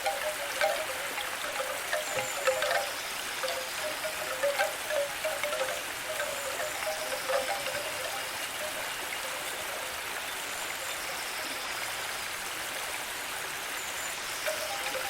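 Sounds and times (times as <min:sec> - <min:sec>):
running water hiss: 0:00.0 - 0:15.0.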